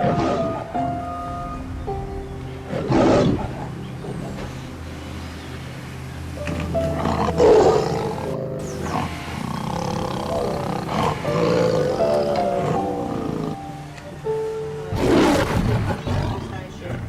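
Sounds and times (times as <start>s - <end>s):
gentle background music: 0.0s - 17.0s
big cat roaring and growling: 6.5s - 13.6s, 14.9s - 17.0s.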